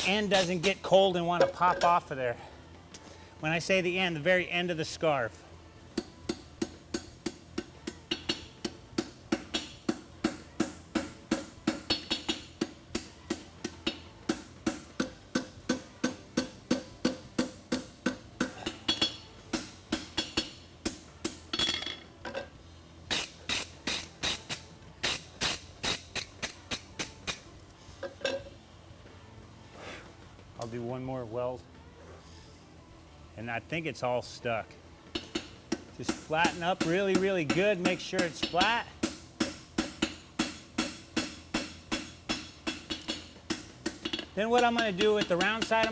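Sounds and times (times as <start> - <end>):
hammer striking hot metal on anvil: 6.0 - 22.0, 35.2 - 45.9.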